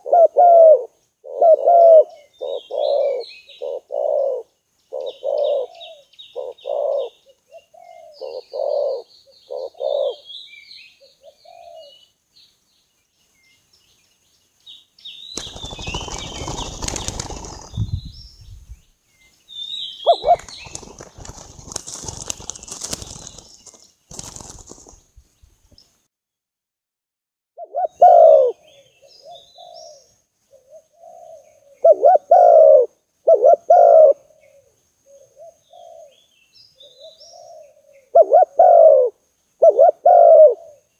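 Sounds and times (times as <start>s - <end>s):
dove cooing: 0.0s - 10.3s, 11.0s - 12.0s, 20.0s - 23.4s, 27.6s - 36.2s, 36.8s - 40.9s
small birds chirping: 0.0s - 26.1s, 27.6s - 40.9s
loud rustling: 20.4s - 25.0s.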